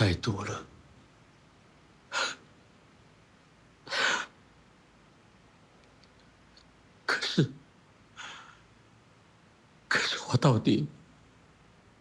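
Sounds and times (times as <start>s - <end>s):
person heavy breathing: 8.2s - 8.7s.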